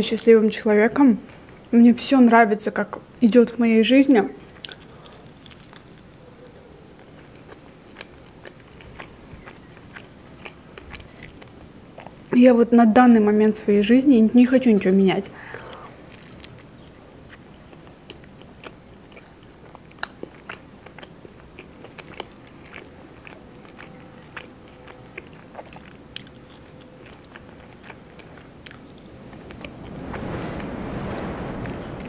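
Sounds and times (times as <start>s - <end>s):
chewing and biting food: 4.5s - 12.3s, 16.1s - 30.1s
broad rush of noise: 28.7s - 32.0s.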